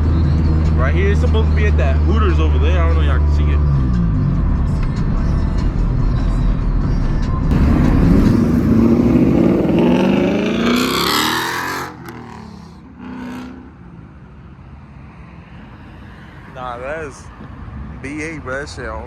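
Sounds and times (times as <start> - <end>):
car engine accelerating hard: 7.5 - 13.6.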